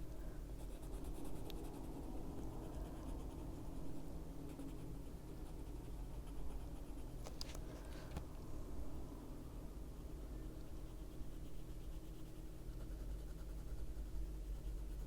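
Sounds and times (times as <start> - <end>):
pencil scratching on paper: 10.8 - 15.0.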